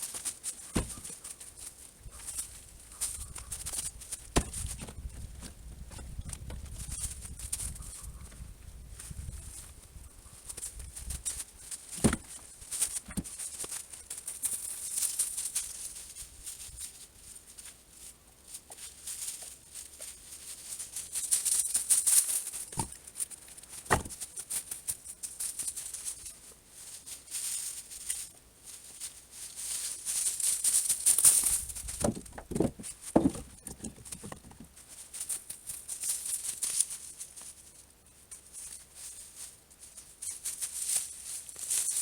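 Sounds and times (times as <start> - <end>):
rustling and crunching: 0.0 - 42.0
dull thumps: 0.7 - 1.2, 4.2 - 6.9, 11.9 - 13.4, 22.7 - 23.0, 23.8 - 24.2, 31.9 - 34.8.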